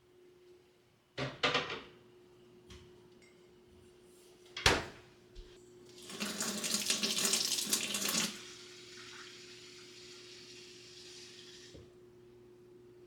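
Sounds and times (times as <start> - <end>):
water running from a tap: 5.9 - 11.8.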